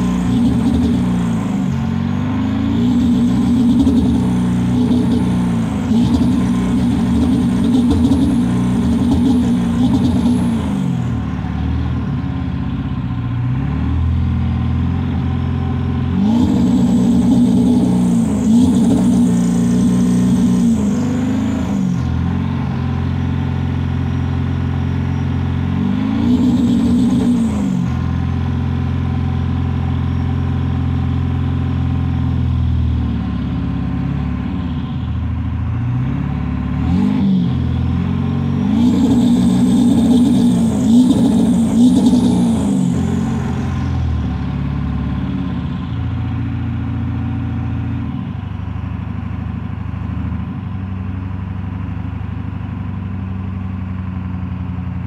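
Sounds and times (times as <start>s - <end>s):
diesel engine revving: 0.0s - 51.8s.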